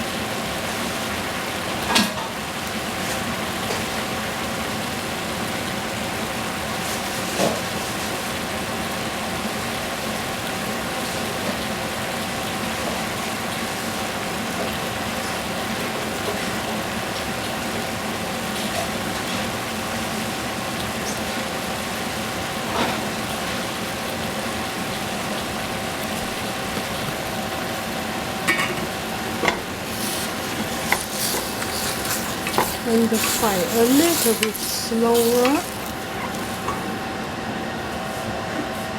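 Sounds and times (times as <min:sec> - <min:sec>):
food sizzling in a pan: 0:00.0 - 0:37.2
constant hum: 0:24.5 - 0:38.7
utensil clicking against pan: 0:28.5 - 0:36.9.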